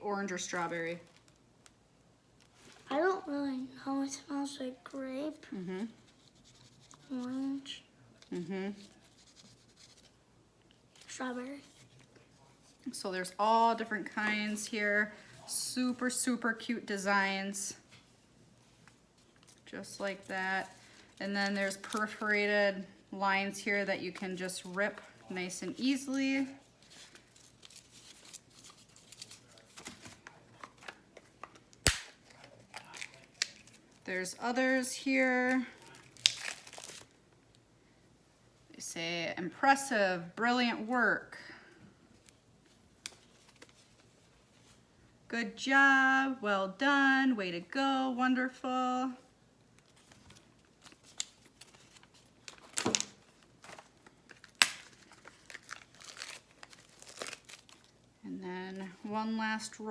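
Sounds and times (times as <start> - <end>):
paper rustling: 26.6 - 34.0, 49.8 - 57.9.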